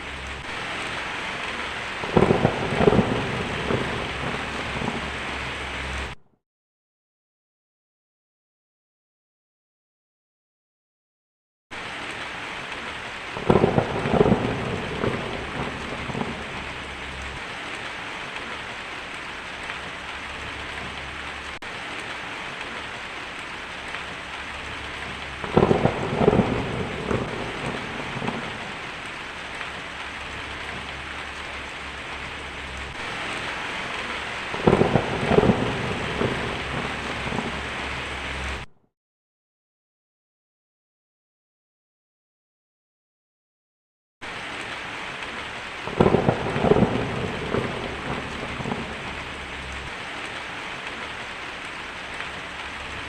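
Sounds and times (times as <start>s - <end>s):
heavy rain: 0.0s - 6.2s, 11.7s - 38.7s, 44.2s - 53.0s
thunder cracking and rumbling: 0.0s - 6.2s, 12.7s - 38.7s, 45.3s - 53.0s.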